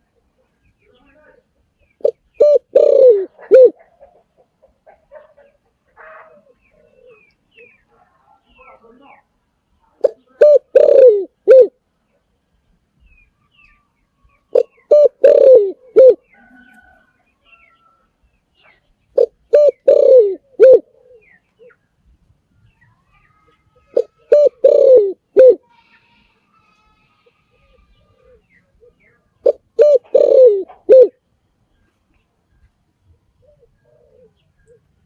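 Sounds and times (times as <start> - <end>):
dove cooing: 2.0 - 7.8, 10.0 - 11.8, 14.5 - 17.0, 19.2 - 21.8, 23.4 - 26.2, 27.2 - 31.2, 33.1 - 35.0
faint small-bird chirps: 13.0 - 14.9.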